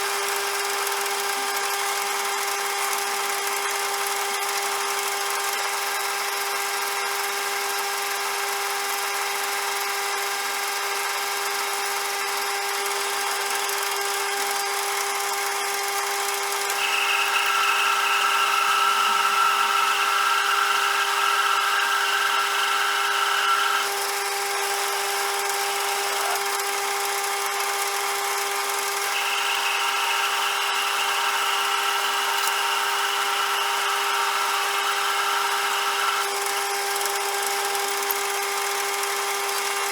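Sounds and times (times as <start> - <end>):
lathe machine whine: 10.5 - 39.9
loud high whine: 16.5 - 26.8, 28.8 - 36.6.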